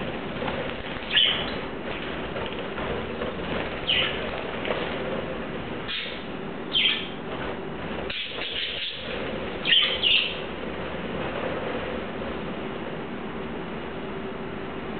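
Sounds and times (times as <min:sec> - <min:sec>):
steady background hiss: 0:00.0 - 0:14.9
budgerigars chirping: 0:01.1 - 0:01.6, 0:03.8 - 0:04.2, 0:05.9 - 0:07.2, 0:08.1 - 0:10.4.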